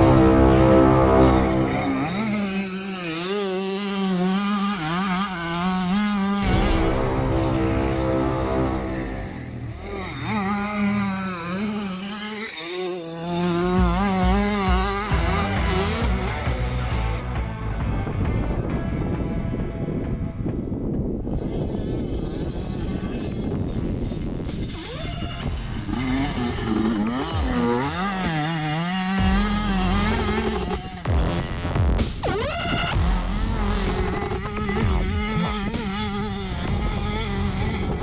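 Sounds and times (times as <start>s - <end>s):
dirt bike engine buzzing: 0.0s - 38.0s
low thumps: 6.4s - 9.9s.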